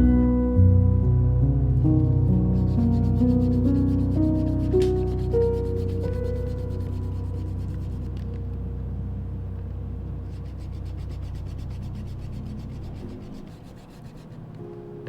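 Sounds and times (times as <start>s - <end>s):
low steady hum: 0.0s - 15.0s
drawing tool rubbing on paper: 2.5s - 8.1s, 10.3s - 14.5s.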